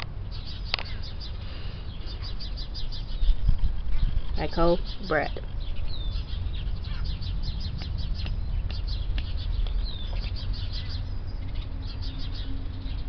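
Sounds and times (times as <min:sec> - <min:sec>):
small birds chirping: 0:00.0 - 0:13.0
steady low rumble: 0:00.0 - 0:13.0.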